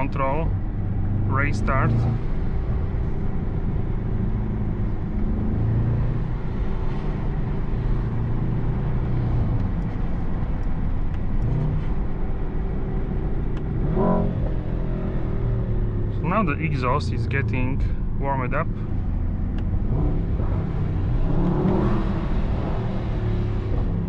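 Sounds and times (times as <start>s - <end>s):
car engine running: 0.0s - 24.0s
tyre and road noise: 0.0s - 24.0s.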